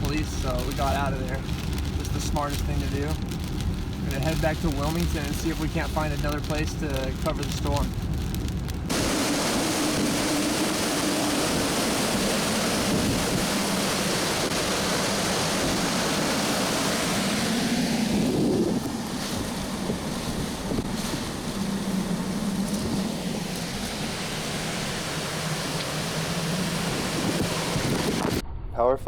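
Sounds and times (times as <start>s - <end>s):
wind buffeting microphone: 0.0s - 28.4s
strong wind blowing: 0.0s - 29.0s.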